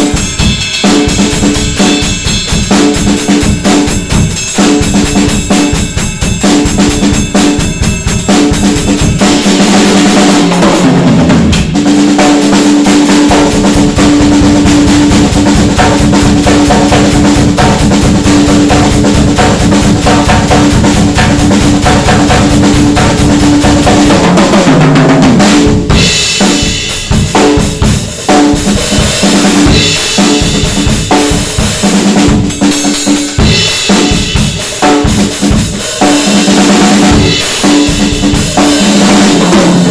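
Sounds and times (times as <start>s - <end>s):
crash and ride cymbals: 25.5s - 39.9s.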